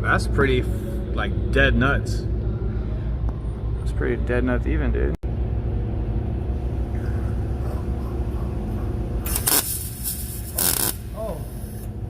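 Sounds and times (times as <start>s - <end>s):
steady low hum: 0.0s - 12.0s
welder crackling: 9.2s - 11.9s.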